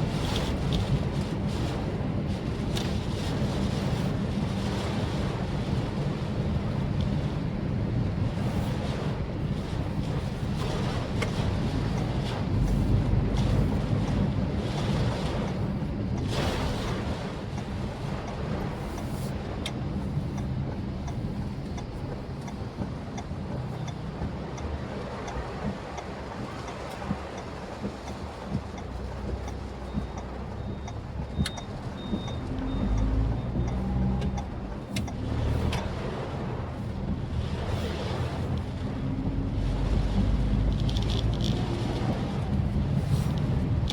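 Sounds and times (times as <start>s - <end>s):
car engine rumble: 0.0s - 43.9s
tyres hissing on wet road: 35.2s - 43.9s.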